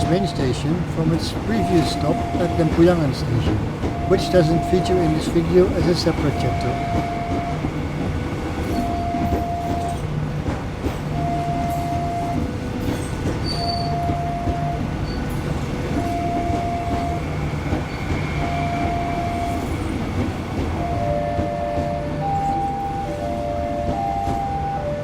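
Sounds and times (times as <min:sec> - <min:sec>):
electric train rumbling: 0:00.0 - 0:25.0
electronic two-tone signal: 0:03.9 - 0:07.6, 0:08.8 - 0:10.0, 0:11.2 - 0:12.4, 0:13.6 - 0:14.8.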